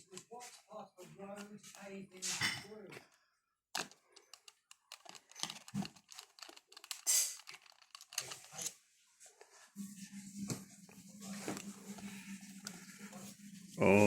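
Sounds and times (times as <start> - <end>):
small hard parts clicking and rattling: 3.8 - 8.8.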